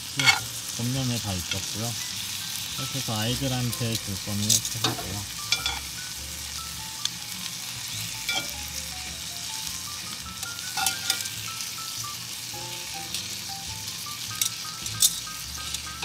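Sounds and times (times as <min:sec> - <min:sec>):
steak sizzling in a skillet: 0:00.0 - 0:16.0
metal tongs clicking on pan: 0:04.5 - 0:05.8, 0:08.3 - 0:08.5, 0:10.8 - 0:11.3, 0:14.4 - 0:15.8.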